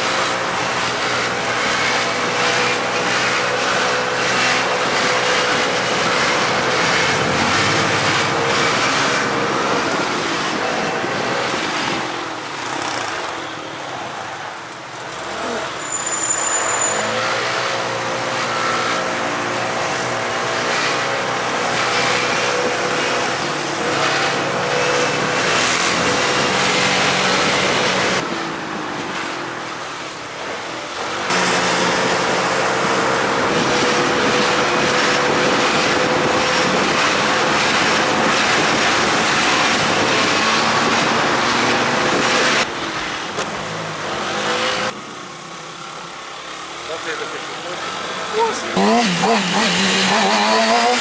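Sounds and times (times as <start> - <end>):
loud rushing wind noise: 0.0 - 12.7, 31.3 - 42.7
moped engine running: 48.2 - 51.0.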